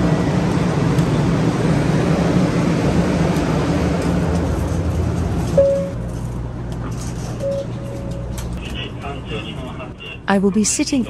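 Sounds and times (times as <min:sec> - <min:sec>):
train hum and rumble: 0:00.0 - 0:11.0
short beep: 0:05.6 - 0:06.0, 0:07.4 - 0:08.3.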